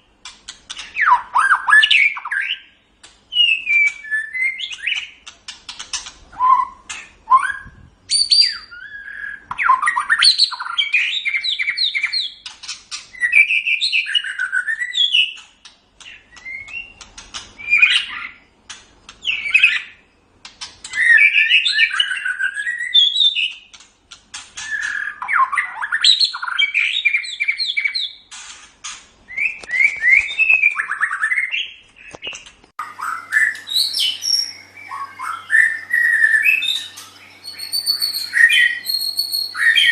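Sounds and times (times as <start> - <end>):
songbird singing varied song: 6.3 - 12.5, 29.3 - 39.9.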